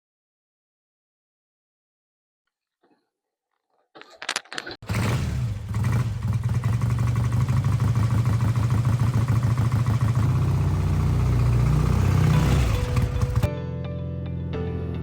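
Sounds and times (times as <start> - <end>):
motorcycle engine running: 4.8 - 13.5.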